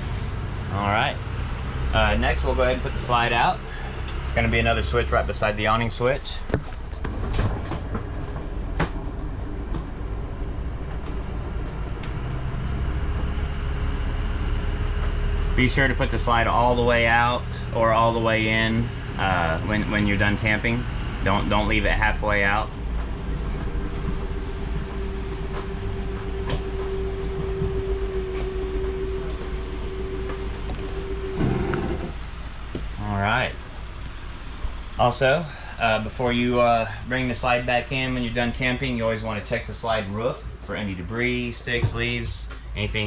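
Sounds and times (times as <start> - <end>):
low mechanical rumble of motor: 0.0 - 43.0
electric motor droning: 24.3 - 32.9.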